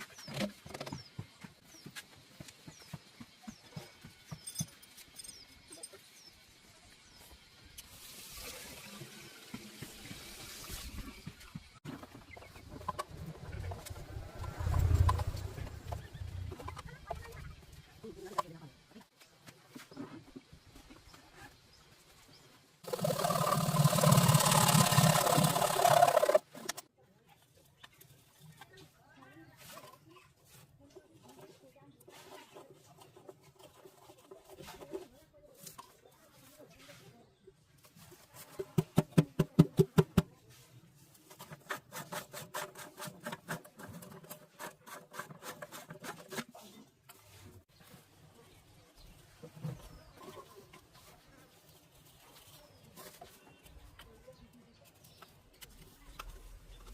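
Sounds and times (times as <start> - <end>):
rubbing or scraping strokes: 22.8 - 26.8, 40.4 - 48.2
small motorised tool buzzing: 22.9 - 26.4.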